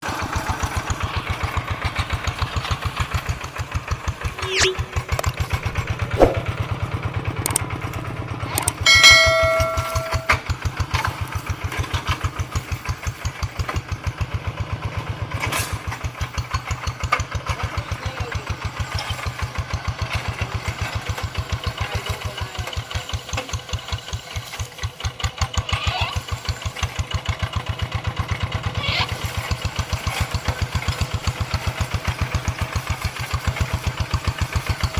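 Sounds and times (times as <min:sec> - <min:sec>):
tractor diesel engine chugging: 0:00.0 - 0:34.9
brief high ringing tone: 0:04.4 - 0:05.0, 0:08.8 - 0:10.4.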